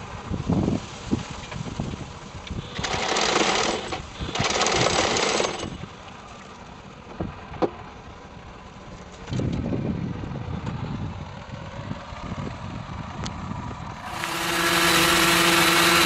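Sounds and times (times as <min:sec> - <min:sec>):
car engine rumble: 0:00.0 - 0:16.0
rapid rattling bursts: 0:02.6 - 0:05.9, 0:14.0 - 0:16.0.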